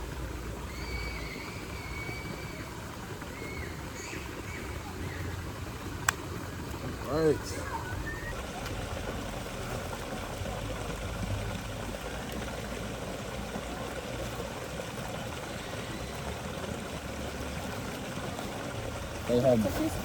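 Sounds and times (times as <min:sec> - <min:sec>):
waterfall rushing: 0:06.8 - 0:20.0.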